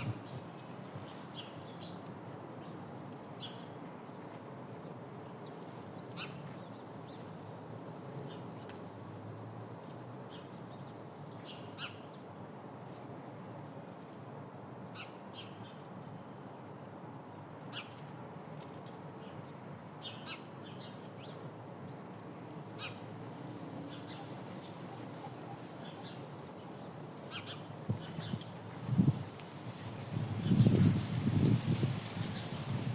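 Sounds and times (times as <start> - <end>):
small birds chirping: 5.4 - 7.4, 10.2 - 12.3, 17.6 - 18.1, 19.1 - 29.1.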